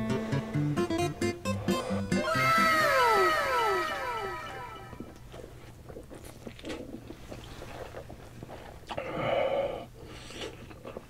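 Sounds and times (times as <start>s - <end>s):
person chewing: 5.0s - 9.1s, 10.0s - 11.0s.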